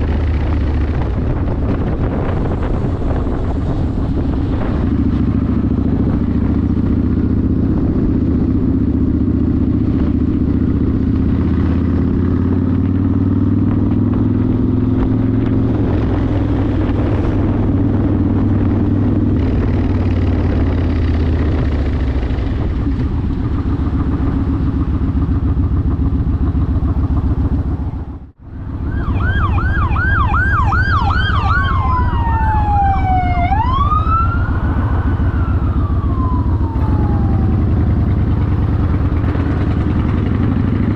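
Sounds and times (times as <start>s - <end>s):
motorcycle engine accelerating: 0.0s - 40.9s
emergency vehicle siren: 27.8s - 40.3s.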